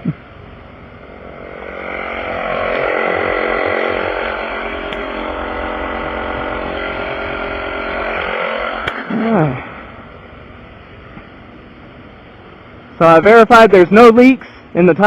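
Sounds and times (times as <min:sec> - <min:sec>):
air compressor running: 0:00.0 - 0:14.8.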